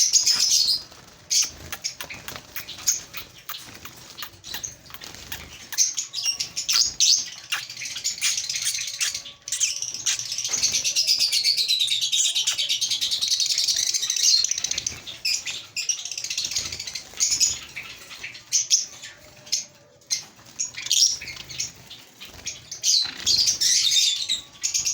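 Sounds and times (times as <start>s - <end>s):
wing flutters: 0.0s - 9.2s
small birds chirping: 0.0s - 24.9s.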